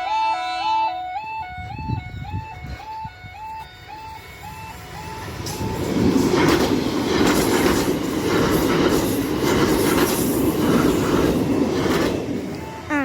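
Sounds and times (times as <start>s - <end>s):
level-crossing alarm two-tone yodel: 0.0s - 5.8s, 12.6s - 13.0s
train rumbling over crossing: 0.0s - 13.0s
wheels clacking over rail joints: 5.2s - 12.9s.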